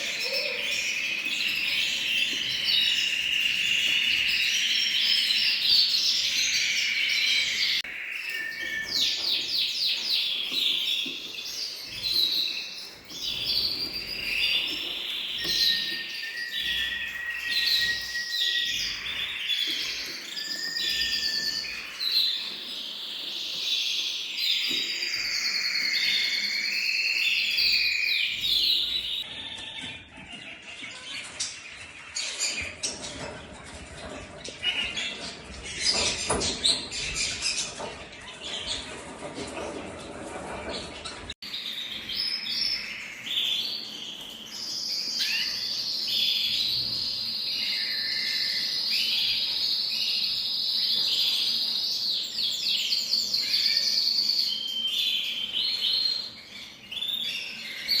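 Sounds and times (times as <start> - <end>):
songbirds singing: 0.0 - 58.0
steady bird whistle: 12.4 - 29.3, 41.6 - 51.6.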